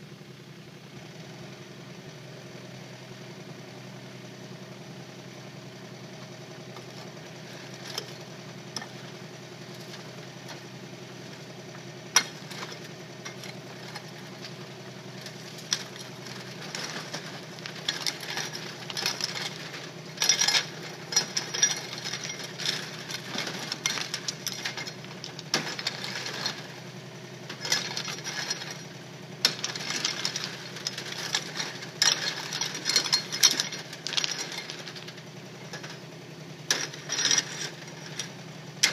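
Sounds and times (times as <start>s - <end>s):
diesel engine running: 0.0s - 38.9s
stones clattering: 12.2s - 26.9s, 27.5s - 36.0s.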